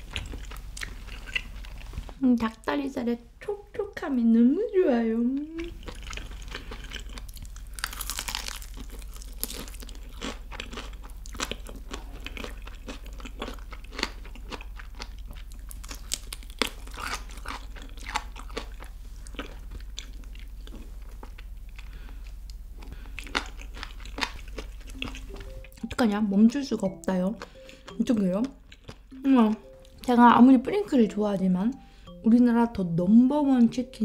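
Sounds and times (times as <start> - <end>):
crunching fried chicken: 5.8 - 25.3.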